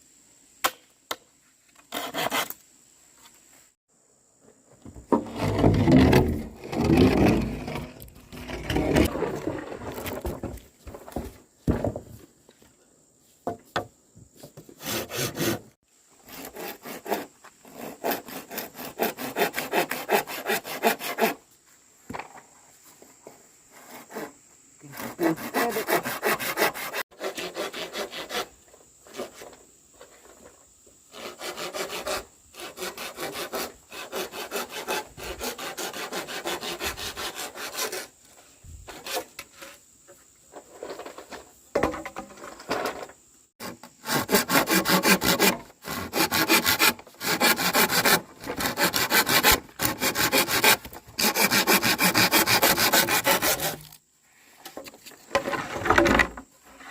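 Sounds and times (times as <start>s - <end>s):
hand saw cutting wood: 1.8s - 2.6s, 5.1s - 10.2s, 14.6s - 21.4s, 23.7s - 29.5s, 31.1s - 38.2s, 38.9s - 39.7s, 43.6s - 54.0s.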